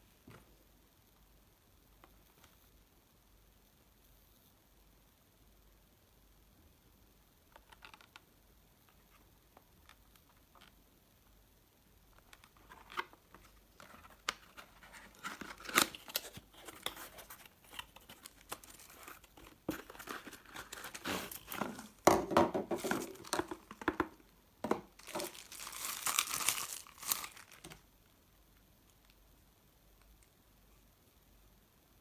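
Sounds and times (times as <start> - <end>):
packaging crinkling and tearing: 12.5 - 22.0, 22.8 - 27.8.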